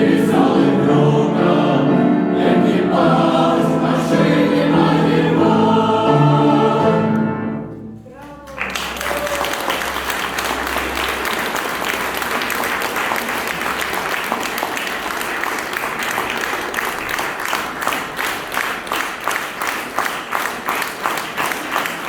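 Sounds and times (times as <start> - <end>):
audience applauding: 8.2 - 22.0
rhythmic clapping in unison: 8.4 - 22.0.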